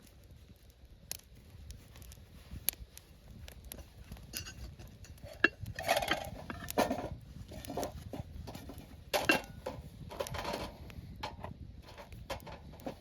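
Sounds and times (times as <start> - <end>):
cookware and utensils clattering: 9.2 - 9.8.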